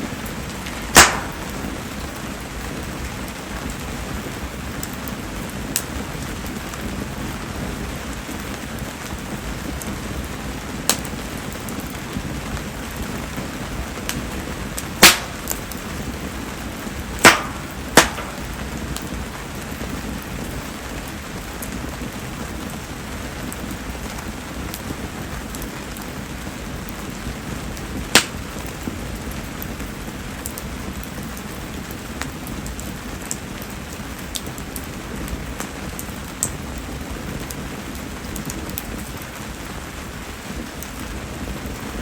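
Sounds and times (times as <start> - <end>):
bonfire burning: 0.0 - 42.0
steady rain falling: 0.0 - 42.0
sharp wood snaps: 0.6 - 1.6, 15.0 - 15.8, 17.2 - 19.1, 28.1 - 28.4.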